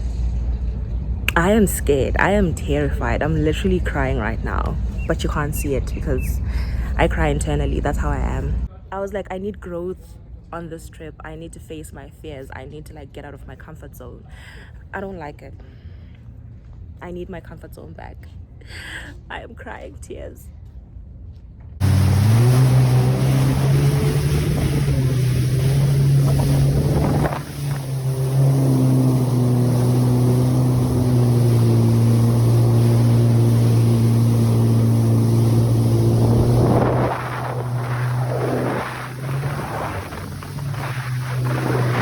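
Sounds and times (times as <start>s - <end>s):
jet ski engine running: 21.8s - 42.0s.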